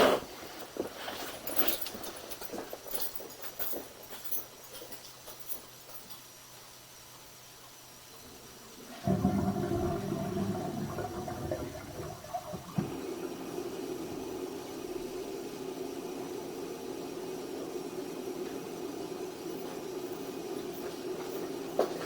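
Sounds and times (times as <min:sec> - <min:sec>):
water rushing into drain: 0:08.9 - 0:14.4.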